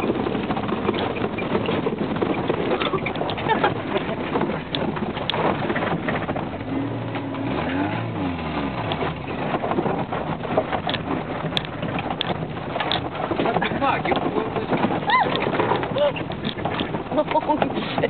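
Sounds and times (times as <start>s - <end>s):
dense crackling background noise: 0.0s - 18.0s
truck engine revving: 2.7s - 13.8s.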